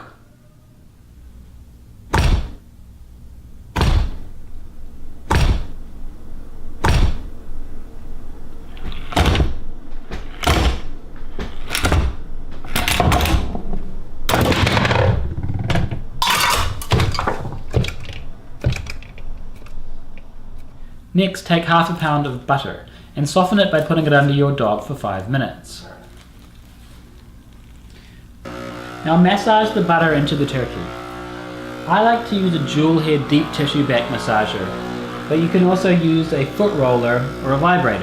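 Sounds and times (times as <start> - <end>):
axe chopping thunks: 2.1 - 2.6, 3.8 - 4.2, 5.3 - 5.8, 6.8 - 7.3, 9.2 - 9.6, 10.2 - 10.9.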